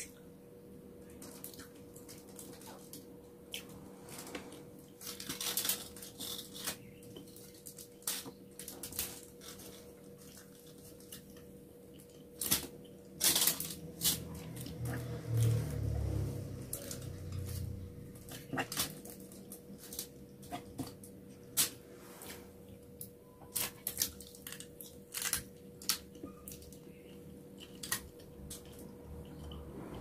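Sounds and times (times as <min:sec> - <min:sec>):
faint steady hum: 0:00.0 - 0:30.0
crackling of foil: 0:01.2 - 0:03.0, 0:04.0 - 0:16.0, 0:16.7 - 0:21.8, 0:23.5 - 0:27.0, 0:27.7 - 0:28.8
chewing: 0:24.1 - 0:30.0.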